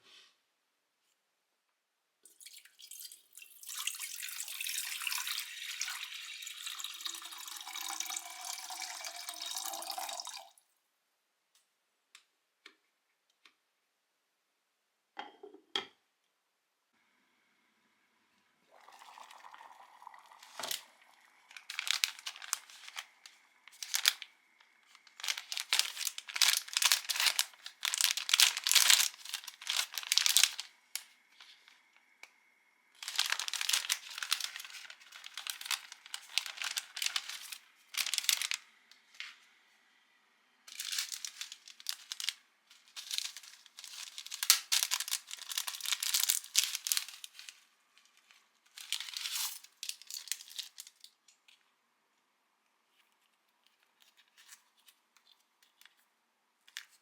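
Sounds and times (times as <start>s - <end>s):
plastic packaging crinkling: 20.4s - 31.7s, 33.0s - 38.7s, 40.7s - 51.6s
plastic packaging tearing: 21.5s - 24.3s, 24.9s - 30.7s, 33.0s - 38.6s, 40.7s - 47.6s, 48.7s - 51.1s.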